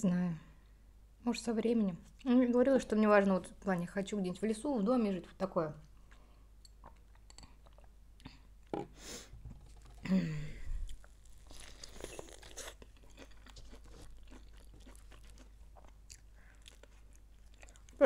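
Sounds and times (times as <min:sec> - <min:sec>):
person chewing and crunching food: 0:05.9 - 0:08.7, 0:09.6 - 0:18.0.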